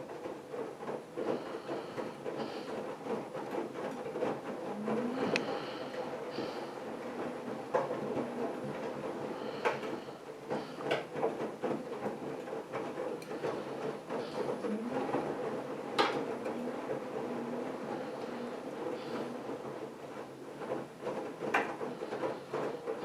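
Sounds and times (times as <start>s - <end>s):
washing machine motor hum: 0.0s - 23.0s.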